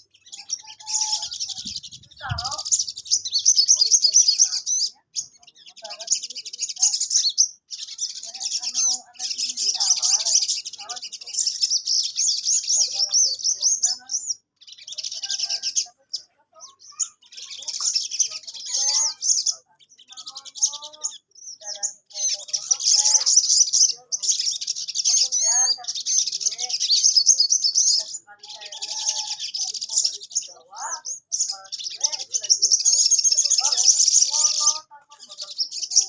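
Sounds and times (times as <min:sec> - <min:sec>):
bird twittering: 0:00.0 - 0:36.0.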